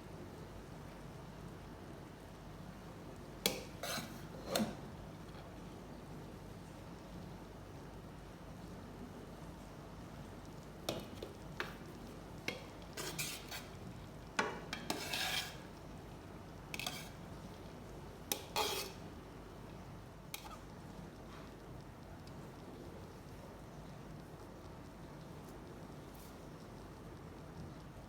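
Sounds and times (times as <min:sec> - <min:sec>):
spoon stirring in a pot: 0:03.4 - 0:04.8, 0:10.5 - 0:16.0, 0:16.6 - 0:19.7, 0:20.3 - 0:20.8.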